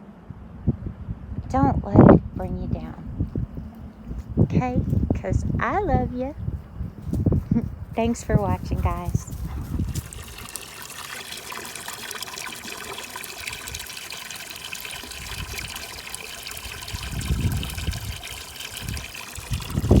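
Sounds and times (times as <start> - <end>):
low rumbling: 0.3 - 10.6
water trickling: 7.2 - 20.0.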